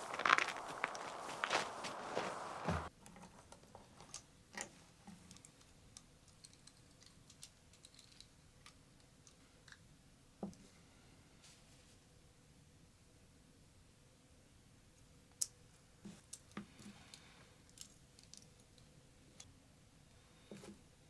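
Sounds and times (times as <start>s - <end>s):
outdoor wind noise: 0.0s - 2.9s.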